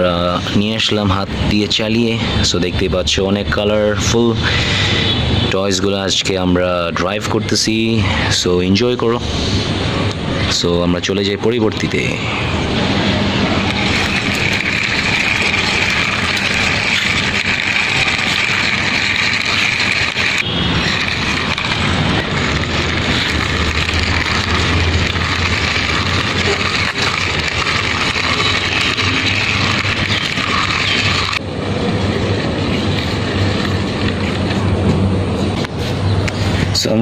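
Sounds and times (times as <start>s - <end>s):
vehicle engine running: 12.0s - 36.7s
low hum: 12.3s - 36.4s.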